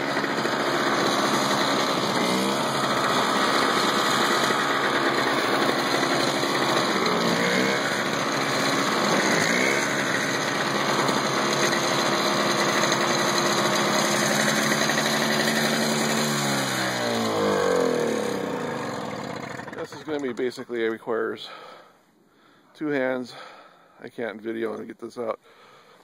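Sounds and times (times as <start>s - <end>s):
snowblower engine running: 0.0s - 20.6s.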